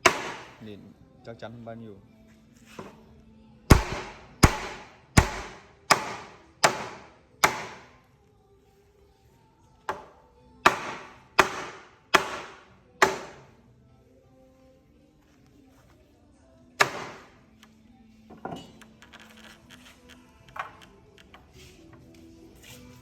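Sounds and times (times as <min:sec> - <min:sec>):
hammer striking wood: 0:00.0 - 0:00.6, 0:03.7 - 0:08.0, 0:09.9 - 0:13.5, 0:16.8 - 0:17.4.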